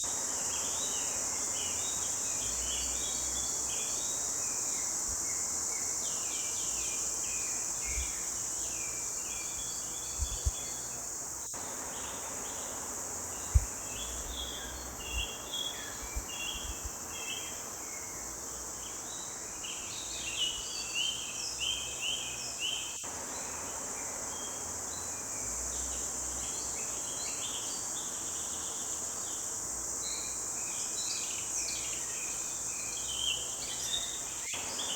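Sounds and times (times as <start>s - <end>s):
high insect drone: 0.0s - 34.9s.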